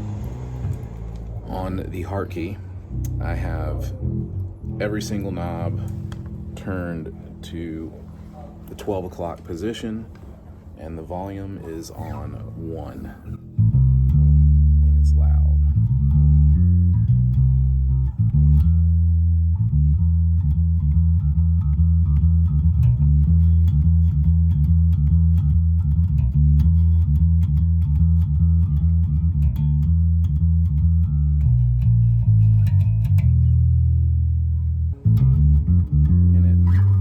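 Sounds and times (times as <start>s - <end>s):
electric bass plucked notes: 0.0s - 37.0s.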